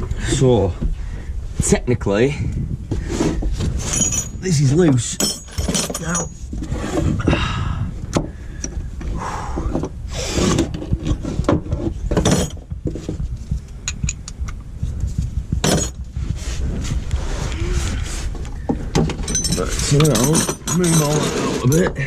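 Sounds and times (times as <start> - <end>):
steady low rumble: 0.0 - 20.8
tools knocking and scraping metal: 3.1 - 7.0, 9.7 - 13.2, 13.8 - 14.6, 15.6 - 16.0, 18.6 - 22.0.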